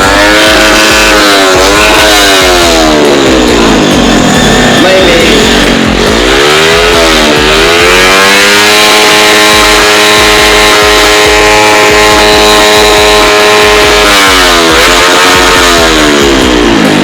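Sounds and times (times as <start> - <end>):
motorcycle engine revving high: 0.0 - 17.0.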